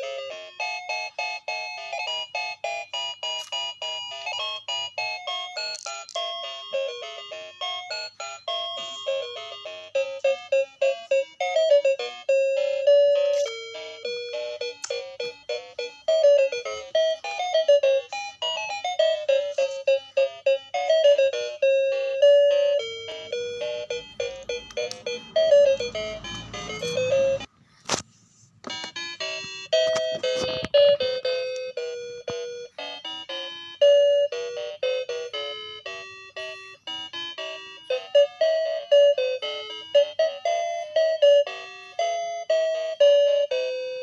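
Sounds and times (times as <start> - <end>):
chiming bell-like melody: 0.0 - 27.5, 29.0 - 44.0.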